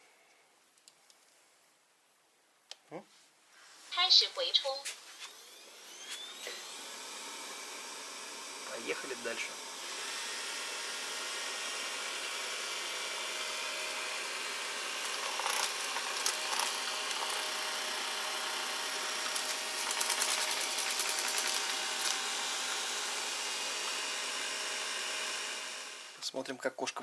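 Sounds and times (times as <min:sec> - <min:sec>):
robot vacuum cleaner whirring: 0:04.0 - 0:26.3
rapid clicking and rattling: 0:13.3 - 0:24.0.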